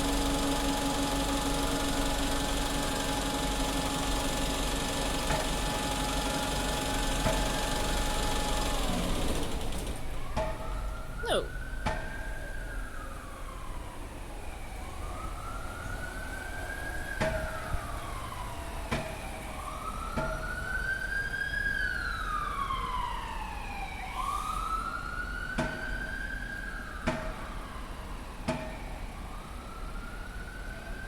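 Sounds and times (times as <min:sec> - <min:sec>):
bus engine idling: 0:00.0 - 0:10.3.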